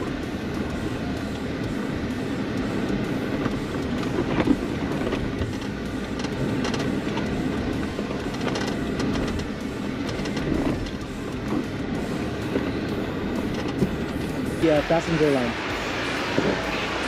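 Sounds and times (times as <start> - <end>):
vehicle engine and tyres rumbling: 0.0 - 17.0
vehicle knocks and rattles: 2.5 - 14.4.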